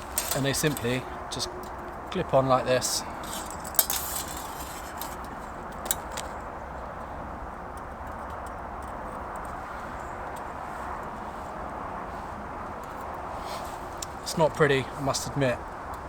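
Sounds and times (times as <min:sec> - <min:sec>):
metal clips snapping: 0:00.0 - 0:01.9, 0:03.2 - 0:06.4
steady background hiss: 0:00.0 - 0:07.7, 0:09.6 - 0:16.0.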